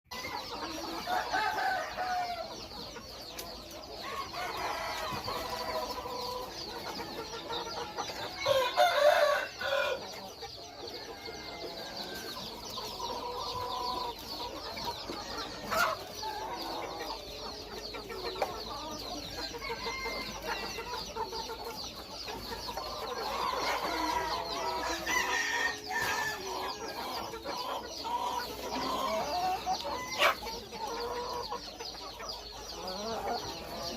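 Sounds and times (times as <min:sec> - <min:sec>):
chickens clucking: 0:00.1 - 0:33.9
rooster crowing: 0:08.4 - 0:10.0, 0:23.8 - 0:26.5.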